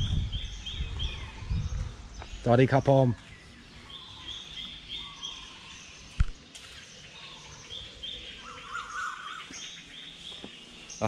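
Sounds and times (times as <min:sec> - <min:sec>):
birds chirping: 0:00.0 - 0:11.0
outdoor background noise: 0:00.0 - 0:11.0.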